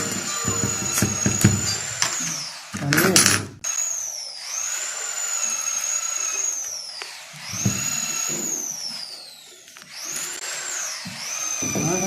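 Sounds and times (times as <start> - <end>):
low knocks: 0.0 - 2.2
power tool whining: 0.0 - 12.0.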